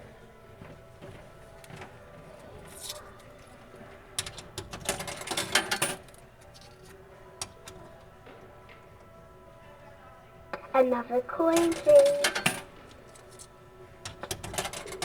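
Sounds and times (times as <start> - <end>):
faint background tones: 5.8 - 15.0.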